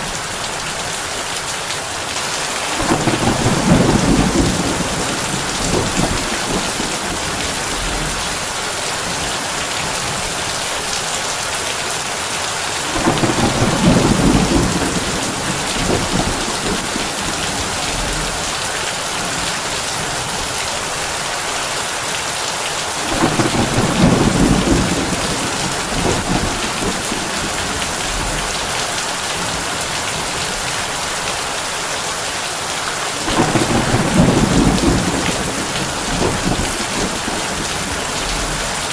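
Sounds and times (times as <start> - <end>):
rain on a tin roof: 0.0 - 38.9
thunder rolling: 2.7 - 10.2, 12.8 - 18.6, 23.1 - 28.8, 33.2 - 38.9.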